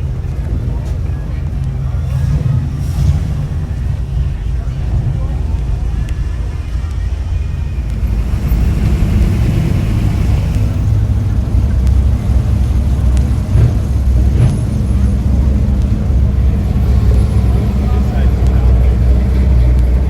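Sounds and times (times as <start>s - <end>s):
faint voices: 0.0s - 20.0s
vehicle engine rumbling: 0.0s - 20.0s.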